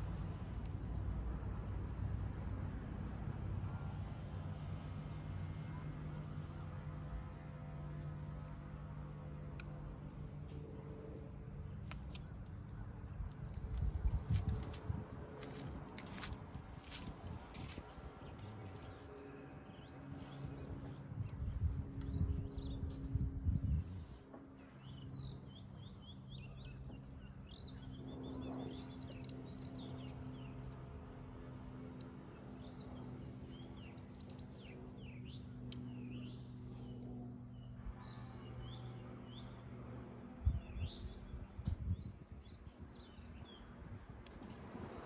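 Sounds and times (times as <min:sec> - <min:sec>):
steady low hum: 0:00.0 - 0:45.0
small birds chirping: 0:24.6 - 0:44.6.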